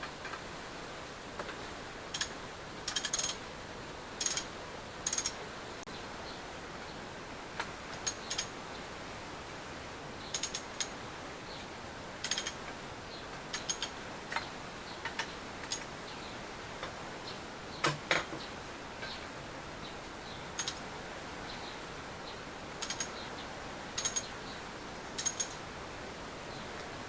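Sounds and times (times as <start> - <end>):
steady hiss: 0.0 - 27.0
metallic clicks of hand tools: 2.1 - 3.4, 4.2 - 5.4, 10.3 - 10.9, 12.2 - 12.6, 13.5 - 15.9, 20.6 - 20.8, 22.8 - 23.2, 24.0 - 24.3, 25.2 - 25.6.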